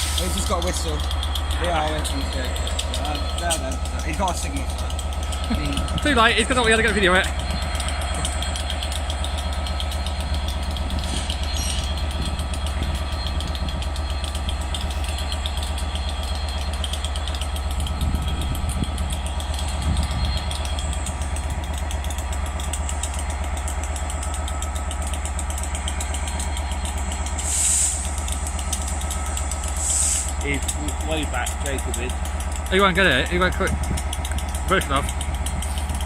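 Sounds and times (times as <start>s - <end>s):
diesel locomotive engine idling: 0.0s - 36.0s
short hiss: 27.4s - 28.0s, 29.8s - 30.3s.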